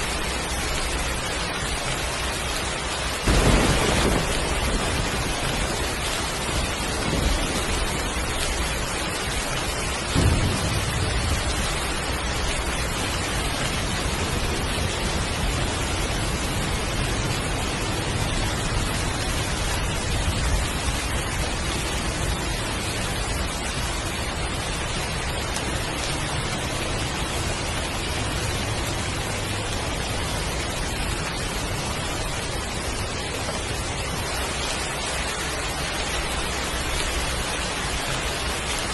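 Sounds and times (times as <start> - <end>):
heavy rain falling: 0.0 - 38.9
low thunder rumbling: 0.0 - 38.9
thunder crack: 3.2 - 8.9, 10.0 - 22.3.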